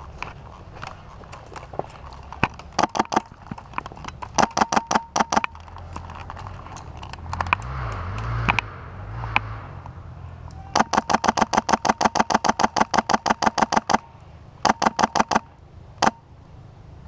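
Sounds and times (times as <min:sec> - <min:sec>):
rushing noise with low rumble: 0:00.0 - 0:11.2
airsoft guns firing bursts: 0:02.8 - 0:03.4, 0:04.3 - 0:05.6, 0:10.8 - 0:16.2.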